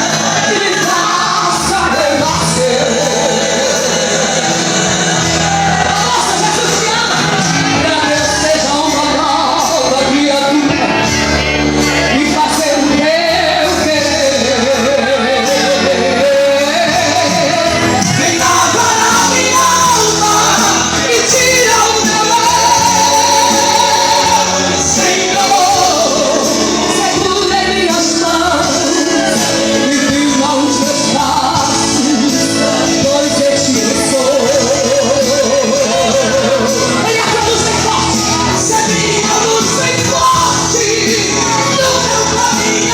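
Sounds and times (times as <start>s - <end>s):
band playing: 0.0s - 42.9s
woman singing gospel: 0.0s - 42.9s.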